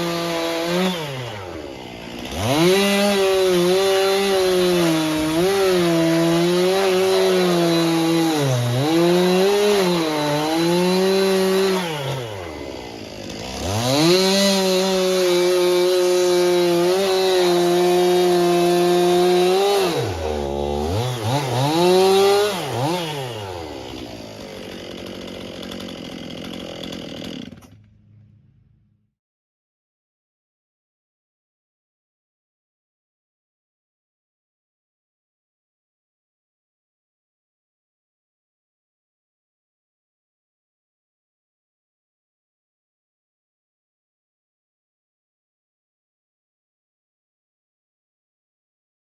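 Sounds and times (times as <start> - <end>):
two-stroke engine revving: 0.0 - 28.4.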